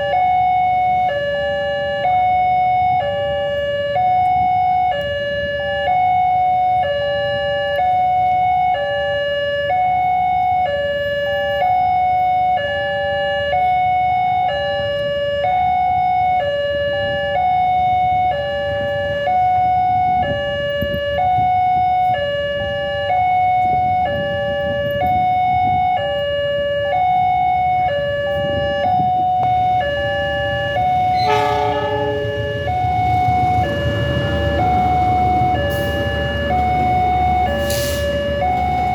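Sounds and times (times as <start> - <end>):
level crossing two-tone alarm: 0.0 - 38.9
short horn: 31.2 - 32.6.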